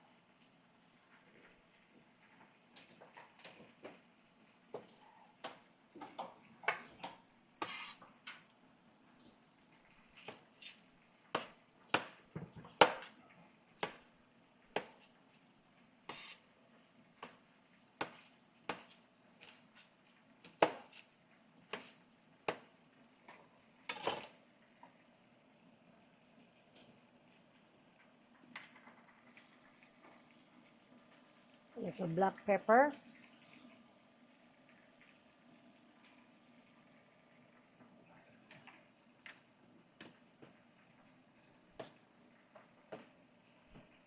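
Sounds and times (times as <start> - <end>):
dishes and utensils clinking: 23.9 - 24.4.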